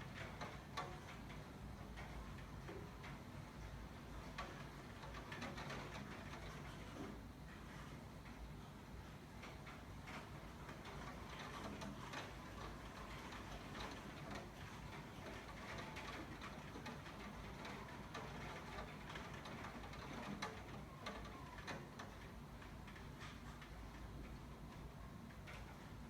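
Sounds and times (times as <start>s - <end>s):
raindrops ticking: 0.0s - 6.8s, 9.4s - 26.0s
light rain: 0.0s - 26.0s.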